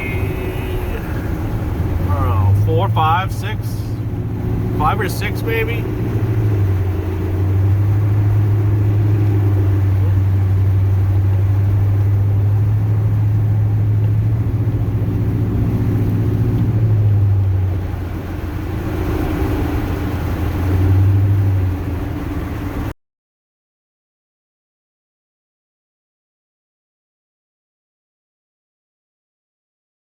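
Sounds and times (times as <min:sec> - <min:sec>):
truck engine drone from inside cab: 0:00.0 - 0:22.9.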